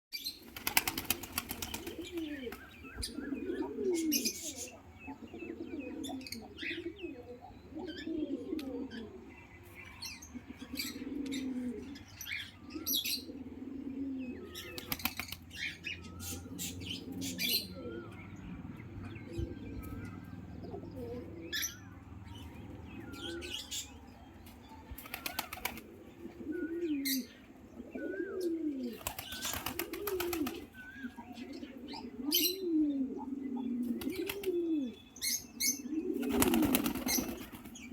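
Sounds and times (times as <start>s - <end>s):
pigeons cooing: 0.2s - 37.9s
wings flapping and rustling: 0.3s - 2.8s, 14.6s - 15.5s, 24.9s - 26.0s, 28.9s - 30.8s, 33.8s - 34.6s, 36.2s - 37.9s.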